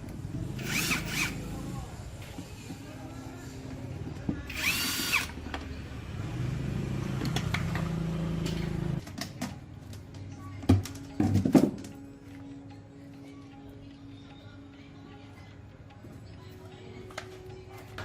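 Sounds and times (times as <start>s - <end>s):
power drill whining: 0.6s - 1.4s, 4.5s - 5.4s.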